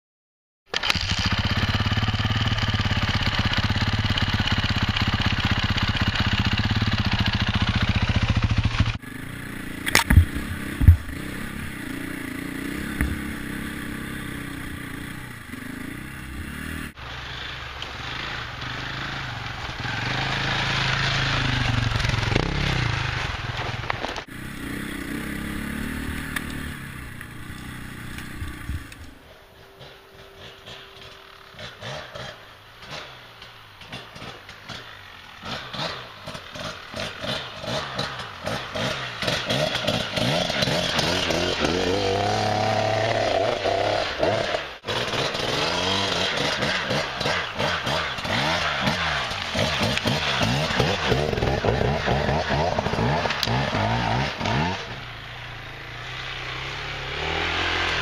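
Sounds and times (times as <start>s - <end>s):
dirt bike engine revving: 0.7s - 58.0s
sharp knocks: 9.8s - 11.1s.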